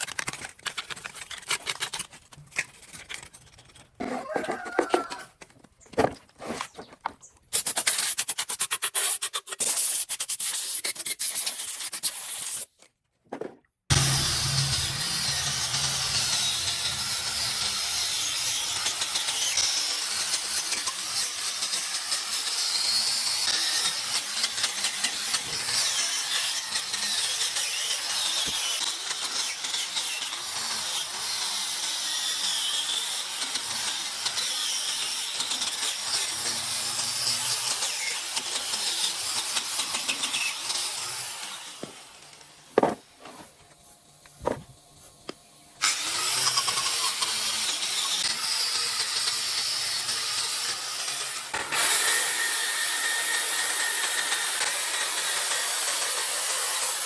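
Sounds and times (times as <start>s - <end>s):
sharp knocks: 42.8s - 43.0s.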